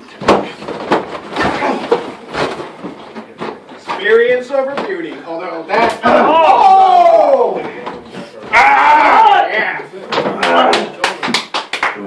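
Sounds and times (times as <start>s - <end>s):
wrestlers thumping on ring: 0.0s - 9.5s.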